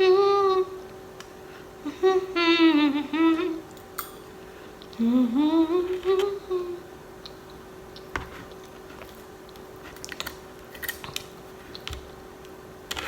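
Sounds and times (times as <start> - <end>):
woman humming: 0.0 - 0.9, 1.8 - 3.7, 4.9 - 6.9.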